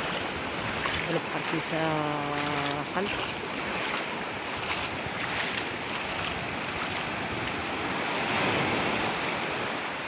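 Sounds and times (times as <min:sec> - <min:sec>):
sea waves washing onto shore: 0:00.0 - 0:10.0.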